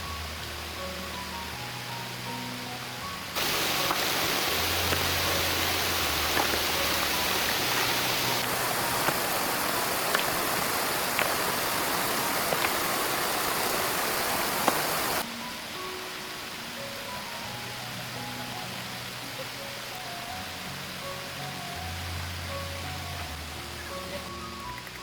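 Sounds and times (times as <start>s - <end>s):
rushing water: 0.0s - 25.0s
soft background music: 0.0s - 25.0s
small clicks and splashes: 3.4s - 15.2s, 23.2s - 25.0s.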